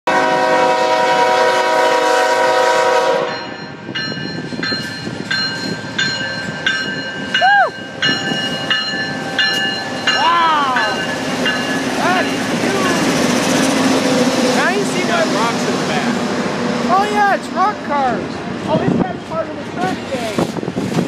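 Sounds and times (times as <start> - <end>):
locomotive horn: 0.1 - 3.5
crossing bell ringing: 3.2 - 16.2.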